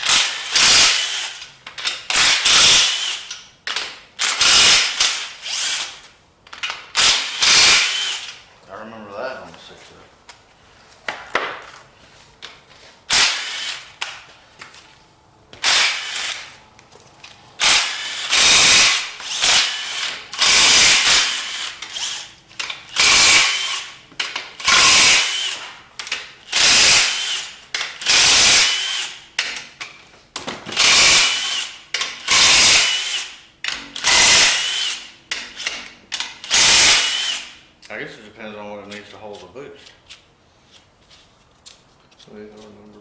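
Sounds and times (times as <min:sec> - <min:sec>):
power wrench motor whine: 0:00.0 - 0:01.5, 0:02.1 - 0:03.4, 0:04.2 - 0:06.0, 0:06.6 - 0:08.4, 0:13.1 - 0:14.0, 0:15.6 - 0:16.6, 0:17.6 - 0:24.0, 0:24.6 - 0:25.7, 0:26.5 - 0:29.2, 0:30.7 - 0:35.7, 0:36.4 - 0:37.6.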